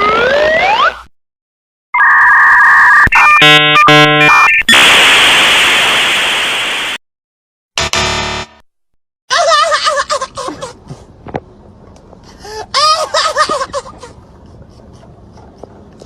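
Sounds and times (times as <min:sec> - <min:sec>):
electronic beeps: 0:02.0 - 0:05.0
steady buzzer tone: 0:03.1 - 0:04.5, 0:07.8 - 0:08.6.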